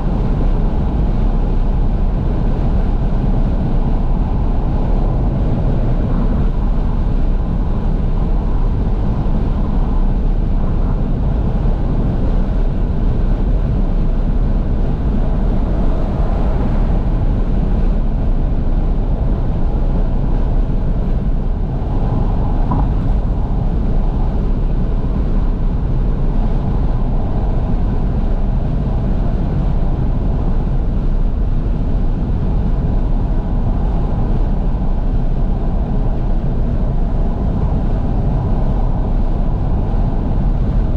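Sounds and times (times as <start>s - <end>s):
car engine running: 0.0s - 31.0s
road noise: 0.0s - 40.9s
wind rush through open windows: 0.0s - 40.9s.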